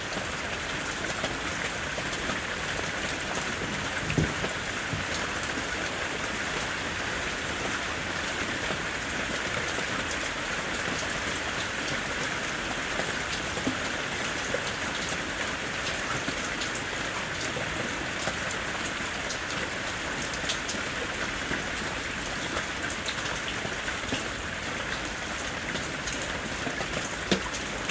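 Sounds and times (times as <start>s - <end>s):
rain falling: 0.0s - 27.9s
raindrop hits: 3.6s - 5.6s.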